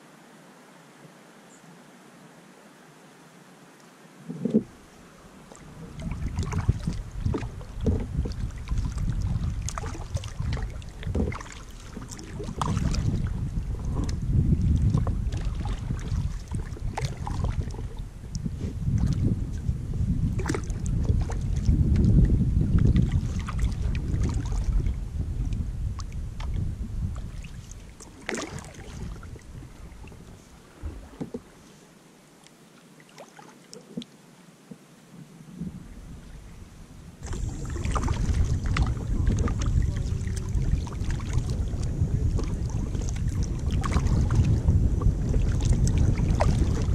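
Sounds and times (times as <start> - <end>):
paddle strokes splashing water: 4.2 - 34.9, 35.5 - 46.9
wind buffeting microphone: 5.6 - 31.5, 35.6 - 46.9.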